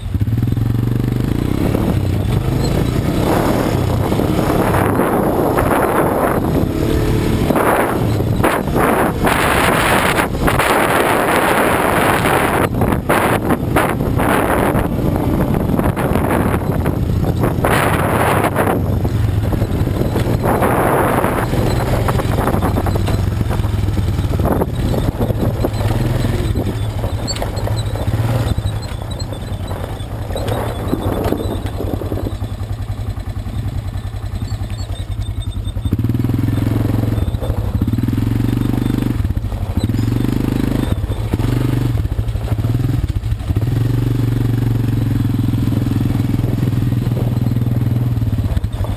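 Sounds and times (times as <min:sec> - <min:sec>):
quad bike engine: 0:00.0 - 0:48.9
rushing wind gusts: 0:00.2 - 0:34.3.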